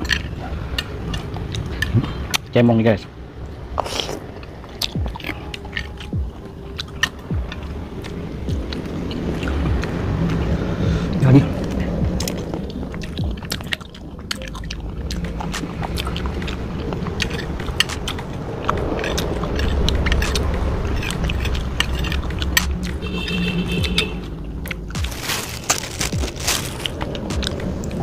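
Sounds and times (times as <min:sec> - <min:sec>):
wet chewing and sucking: 0:00.0 - 0:02.5, 0:03.4 - 0:28.0
sharp mouth clicks: 0:03.8 - 0:10.4, 0:11.6 - 0:25.0.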